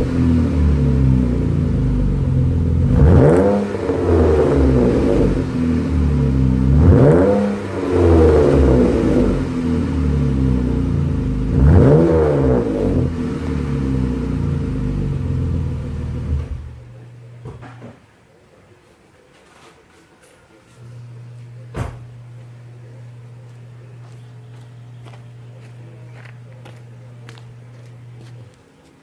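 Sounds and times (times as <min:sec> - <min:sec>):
car engine idling and revving: 0:00.0 - 0:17.3.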